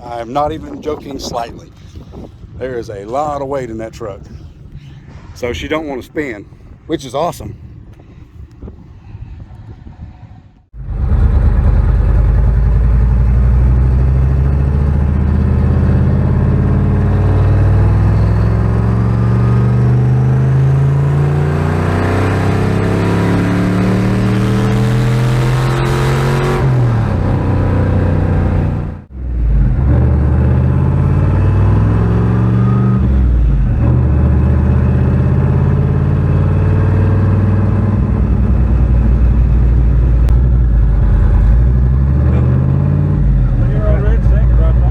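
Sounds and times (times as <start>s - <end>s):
truck engine pulling under load: 10.8s - 44.9s.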